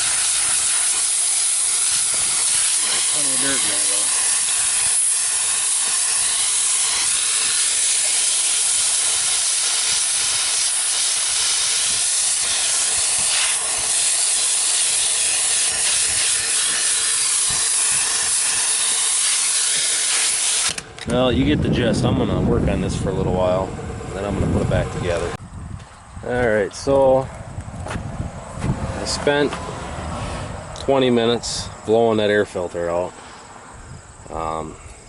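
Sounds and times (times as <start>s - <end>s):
compressed air blowing from nozzle: 0.0s - 21.0s, 28.6s - 30.8s.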